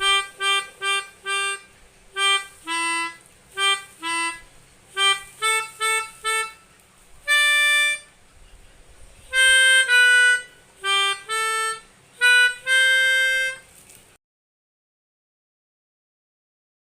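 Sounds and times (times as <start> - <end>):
melodica playing melody: 0.0 - 8.2, 9.3 - 13.7.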